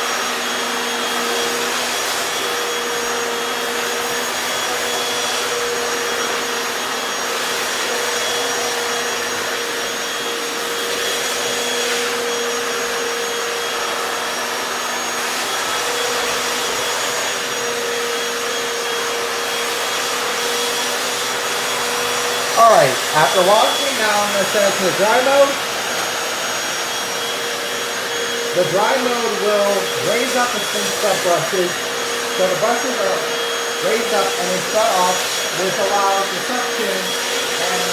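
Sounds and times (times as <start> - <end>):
floor cleaner whine and rush: 0.0 - 37.9.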